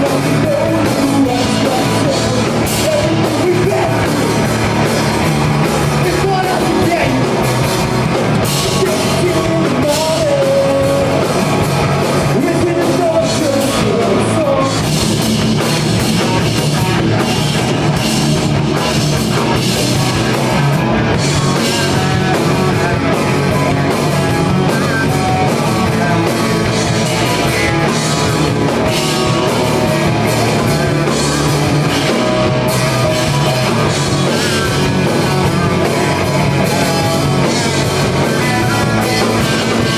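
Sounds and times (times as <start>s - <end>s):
person singing: 0.0s - 7.4s, 8.4s - 11.4s, 12.2s - 15.0s, 32.0s - 39.9s
rock band playing live: 0.0s - 39.9s.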